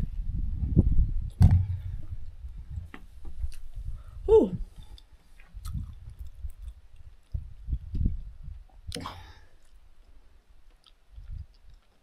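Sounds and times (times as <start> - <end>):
person chewing with mouth clicks: 4.9 - 7.4, 10.7 - 12.0.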